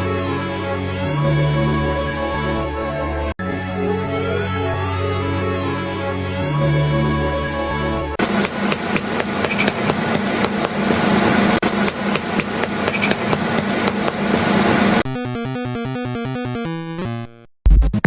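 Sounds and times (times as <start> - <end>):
low hum: 8.2 - 15.0.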